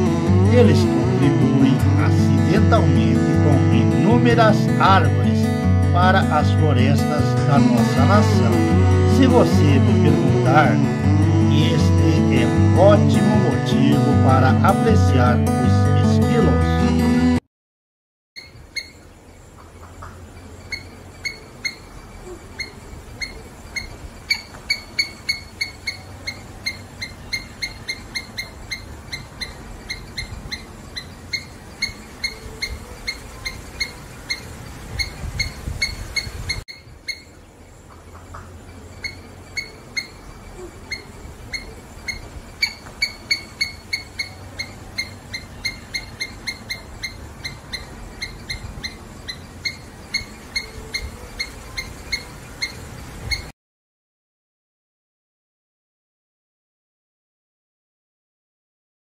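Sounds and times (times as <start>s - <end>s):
small animal chirping: 18.4s - 53.5s.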